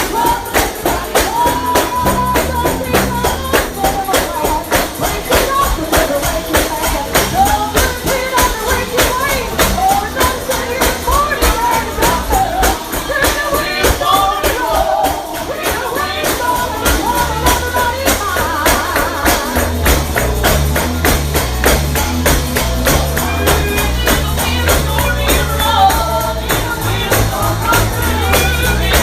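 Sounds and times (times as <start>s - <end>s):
gospel singing: 0.0s - 29.0s
tambourine beat: 0.0s - 29.0s
low bass line: 1.3s - 4.1s, 16.4s - 29.0s.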